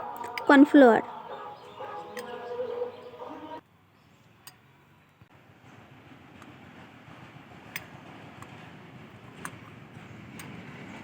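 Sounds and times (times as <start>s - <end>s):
utensils clicking against bowl: 0.1s - 0.6s.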